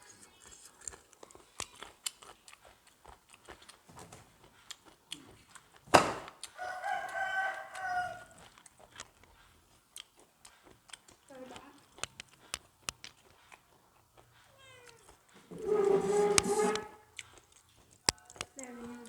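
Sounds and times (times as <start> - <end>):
rooster crowing: 6.6 - 8.4.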